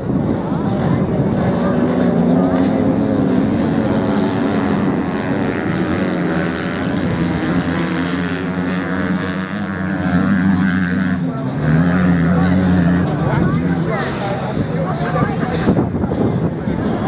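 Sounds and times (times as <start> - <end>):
racing motorcycle engines: 0.0 - 17.0.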